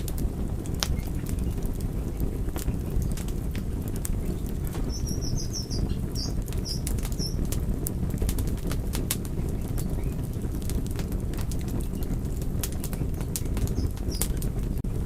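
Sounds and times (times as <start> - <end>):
wood fire crackling: 0.0 - 15.0
high chirps: 4.8 - 7.4.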